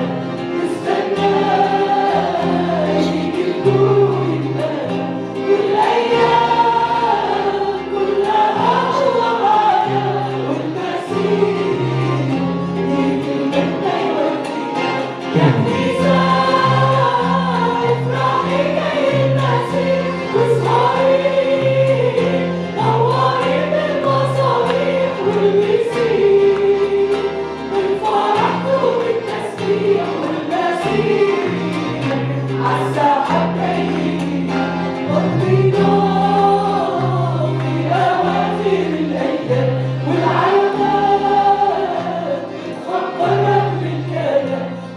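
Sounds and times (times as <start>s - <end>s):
group singing worship song: 0.0s - 44.9s
held low bass notes: 15.3s - 16.8s.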